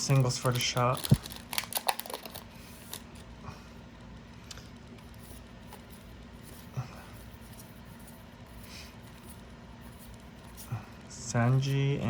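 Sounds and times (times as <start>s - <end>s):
card packaging crinkling: 0.0s - 3.2s.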